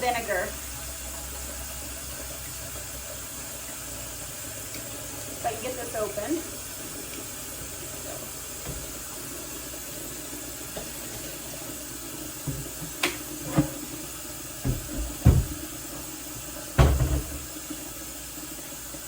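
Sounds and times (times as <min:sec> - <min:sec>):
tap water filling a bowl: 0:00.0 - 0:19.0
knocks and thumps: 0:08.6 - 0:09.0, 0:12.5 - 0:14.0, 0:14.6 - 0:15.8, 0:16.8 - 0:17.6.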